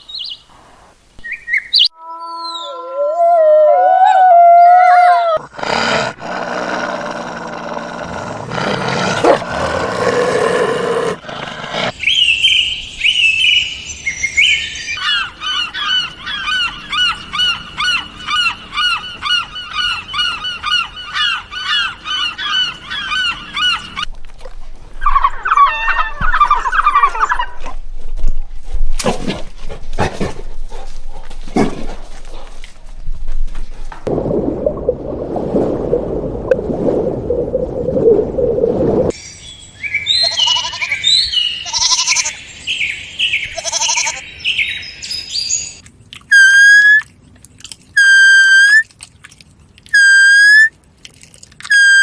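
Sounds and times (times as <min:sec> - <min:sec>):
birds honking and chirping: 0:11.8 - 0:24.1, 0:39.2 - 0:45.8.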